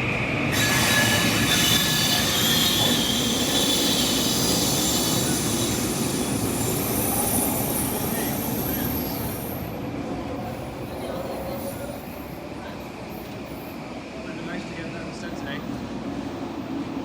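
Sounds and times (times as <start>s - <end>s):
train rumbling: 0.0s - 17.0s
wheels squealing on rails: 0.4s - 14.0s.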